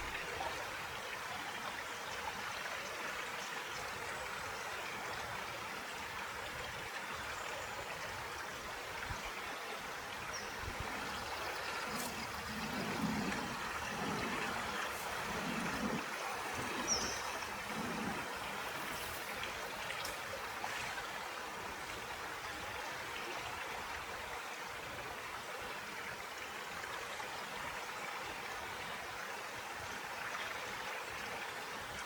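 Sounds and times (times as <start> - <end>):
river water trickling: 0.0 - 32.0.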